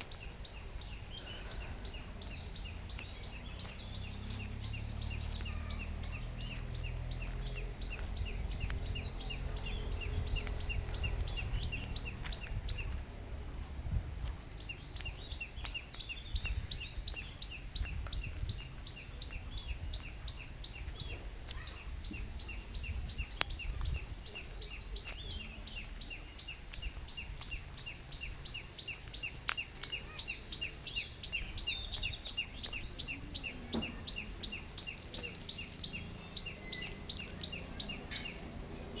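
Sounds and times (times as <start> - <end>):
low rumble: 1.8 - 14.8.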